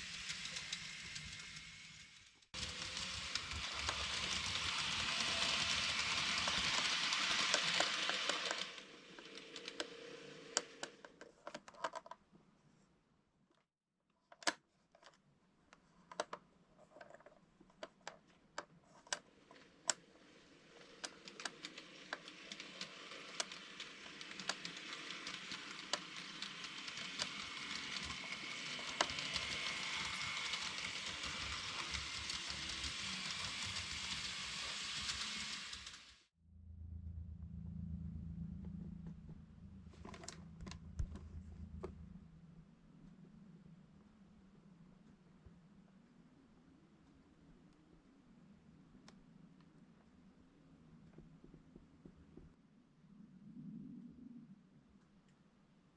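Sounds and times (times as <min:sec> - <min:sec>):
model train motor whirr: 0:00.0 - 0:11.2, 0:19.0 - 0:36.3
wheels clicking over rail joints: 0:00.0 - 0:12.2, 0:17.8 - 0:36.2.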